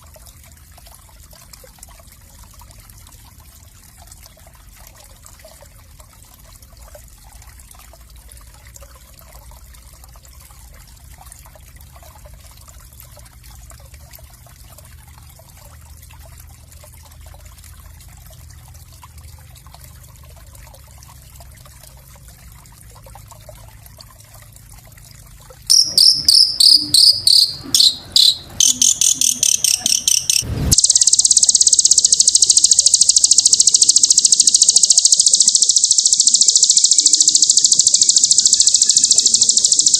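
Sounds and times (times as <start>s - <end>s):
fast buzzing high trill: 25.7s - 39.9s
songbird high-pitched chirps: 25.7s - 39.9s.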